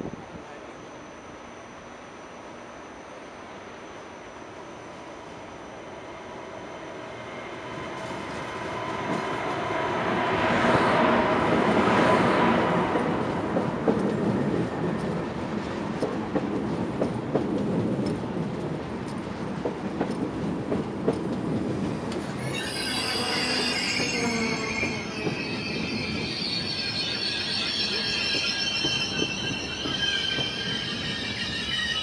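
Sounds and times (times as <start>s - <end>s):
high-speed train running noise: 0.0s - 32.0s
high-pitched brake squeal: 22.2s - 32.0s.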